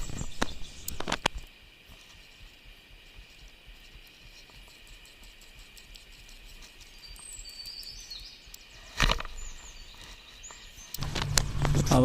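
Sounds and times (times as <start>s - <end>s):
bird chirps: 0.0s - 1.0s, 4.4s - 12.0s
high insect drone: 0.0s - 12.0s.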